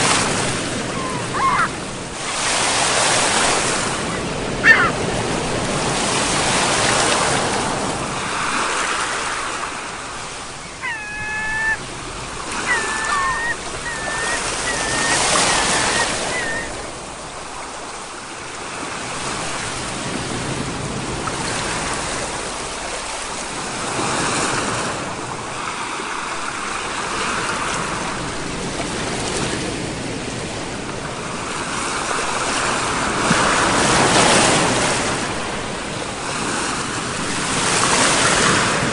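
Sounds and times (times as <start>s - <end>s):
sea waves breaking on shore: 0.0s - 38.9s
short high-pitched calls: 10.8s - 11.8s, 12.6s - 16.8s.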